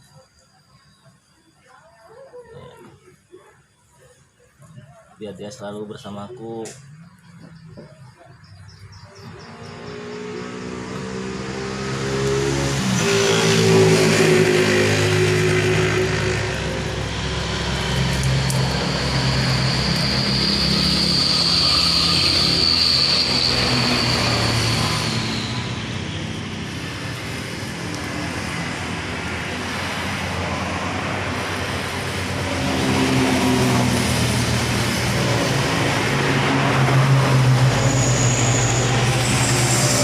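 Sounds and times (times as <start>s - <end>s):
vehicle engine running: 6.7s - 40.0s
high steady whine: 12.8s - 40.0s.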